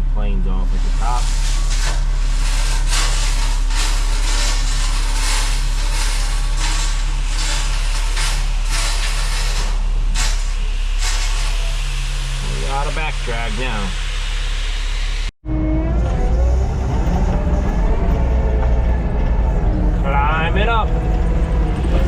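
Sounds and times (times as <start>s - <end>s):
diesel engine running under load: 0.0s - 22.0s
rattling and scraping: 0.7s - 11.7s.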